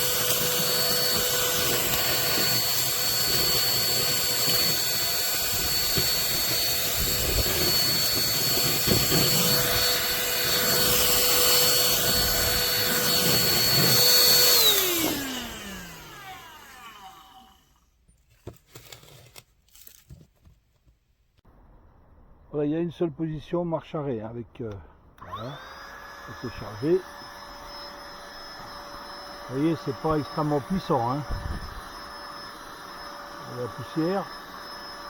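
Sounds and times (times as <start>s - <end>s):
vacuum nozzle bumps: 0.0s - 16.7s
handheld vacuum cleaner whine: 0.0s - 17.8s, 25.2s - 35.0s.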